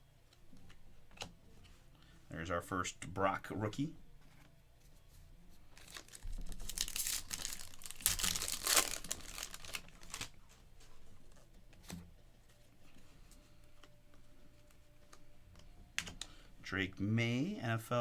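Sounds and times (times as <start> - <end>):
foil wrapper tearing and crinkling: 5.8 - 10.4.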